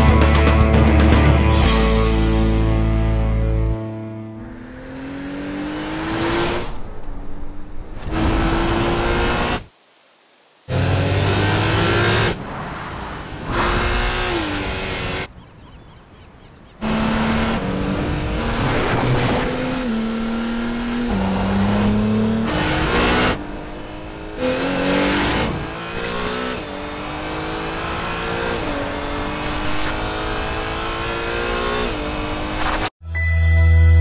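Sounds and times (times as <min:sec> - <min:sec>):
car engine revving: 0:04.4 - 0:09.7, 0:10.7 - 0:12.4, 0:13.0 - 0:15.3, 0:16.8 - 0:32.9
low musical tone: 0:33.0 - 0:34.0.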